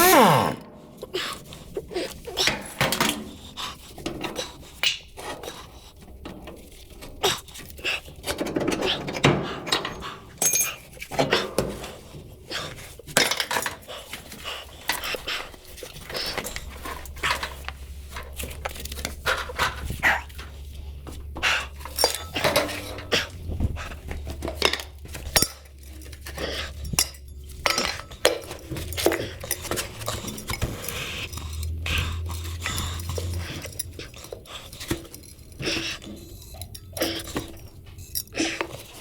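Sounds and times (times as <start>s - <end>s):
metal tools clinking and clattering: 8.4s - 11.8s, 21.6s - 39.0s.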